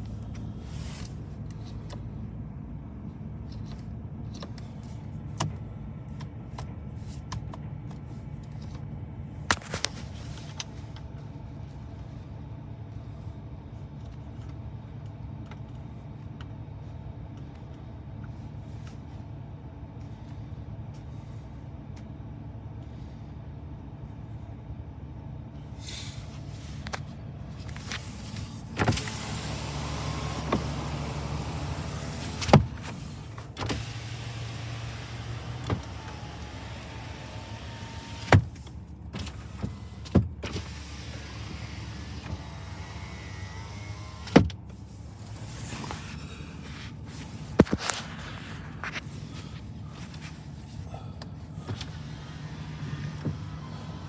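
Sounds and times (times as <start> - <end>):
pickup engine idling: 24.7 - 40.0, 40.6 - 54.0.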